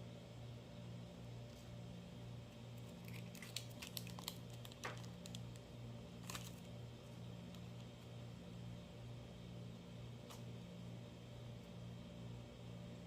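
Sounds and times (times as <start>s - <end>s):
paper crinkling and rustling: 2.8s - 5.6s, 6.2s - 6.7s.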